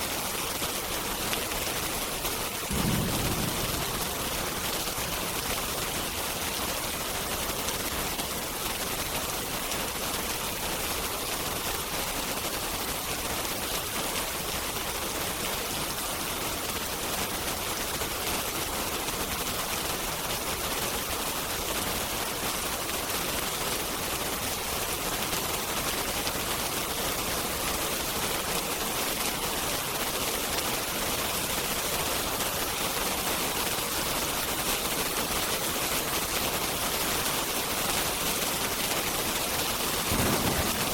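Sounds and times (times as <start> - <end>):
heavy rain: 0.0 - 40.9
wood fire crackling: 0.2 - 13.9, 33.7 - 40.9.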